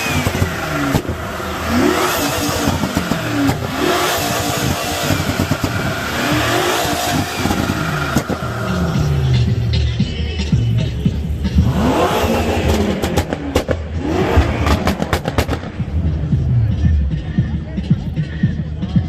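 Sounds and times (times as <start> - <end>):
exhaust crackles and pops: 0.0 - 9.0, 11.6 - 16.8
car engine revving: 0.0 - 17.8.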